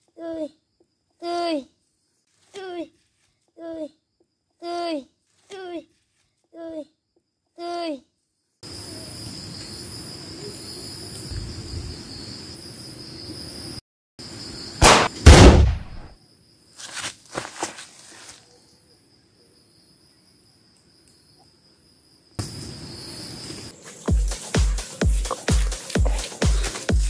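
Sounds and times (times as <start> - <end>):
insects droning: 0.0 - 27.0
faint sharp cracks: 14.8 - 16.1
sniper rifle gunshot: 14.8 - 16.2.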